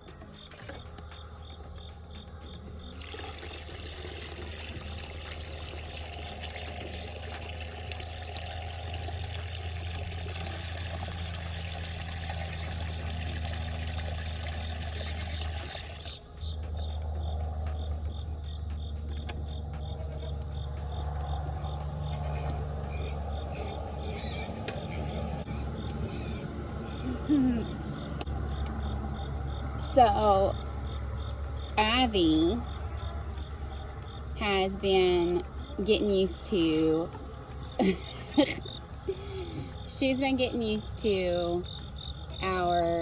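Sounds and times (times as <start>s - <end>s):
crickets chirping: 0.0s - 43.0s
low hum: 0.0s - 43.0s
water pouring: 2.9s - 16.2s.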